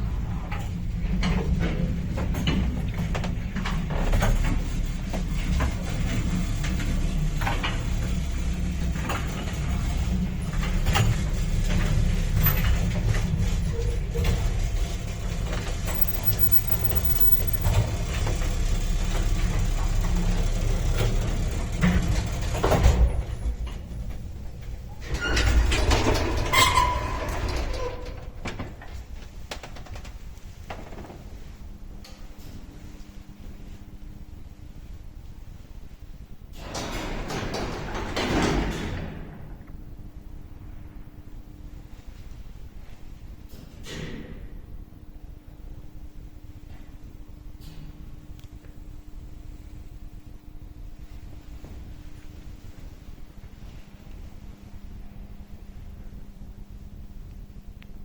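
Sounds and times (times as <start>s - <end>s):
lift car rumbling in shaft: 0.0s - 28.9s
lift creaks and clicks: 0.1s - 31.2s
clatter with squeal: 4.3s - 23.0s.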